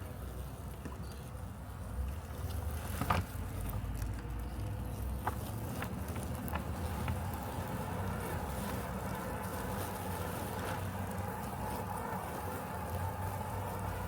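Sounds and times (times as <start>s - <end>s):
robotic lawn mower humming: 4.6s - 14.0s.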